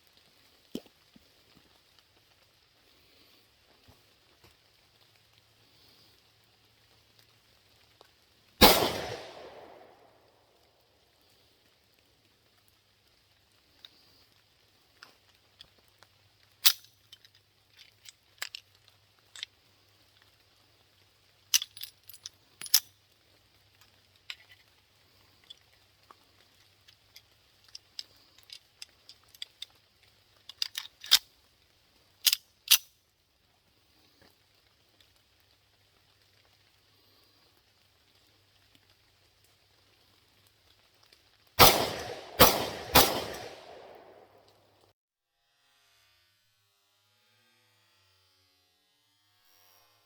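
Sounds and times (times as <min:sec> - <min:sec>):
faint high hiss: 0:02.0 - 0:15.0, 0:41.6 - 0:44.6
pistol metallic clicks: 0:08.6 - 0:10.2, 0:16.6 - 0:16.9, 0:41.6 - 0:44.6.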